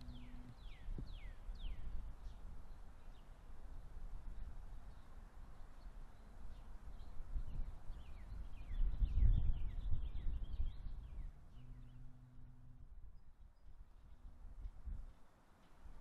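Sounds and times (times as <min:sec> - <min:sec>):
birds chirping: 0:00.0 - 0:01.9, 0:06.2 - 0:13.4
low microphone rumble: 0:00.0 - 0:01.9, 0:08.6 - 0:15.0
faint low hum: 0:00.0 - 0:16.0.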